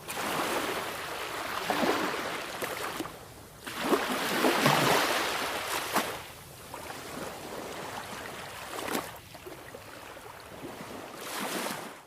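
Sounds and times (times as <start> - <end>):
wave splash: 0.0 - 6.3
sea waves washing on shore: 0.0 - 12.0.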